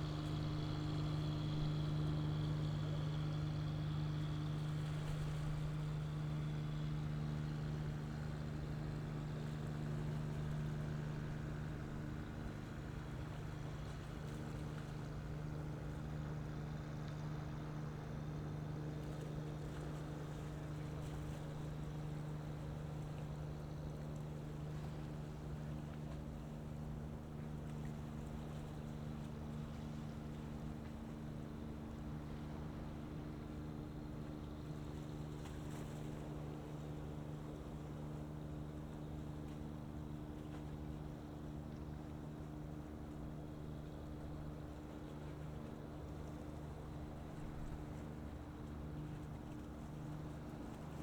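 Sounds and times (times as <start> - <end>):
ship diesel machinery drone: 0.0 - 36.8.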